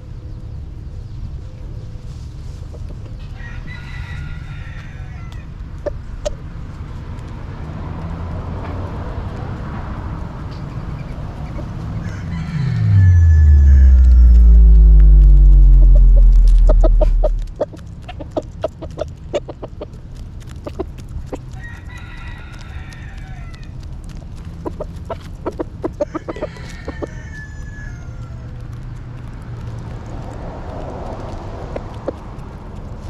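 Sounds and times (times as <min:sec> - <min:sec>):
rooster crowing: 0:03.3 - 0:05.5, 0:11.9 - 0:17.5, 0:21.6 - 0:23.6, 0:26.0 - 0:28.5
loud low rumble: 0:12.0 - 0:18.1
chickens clucking: 0:16.8 - 0:21.8, 0:24.4 - 0:27.1.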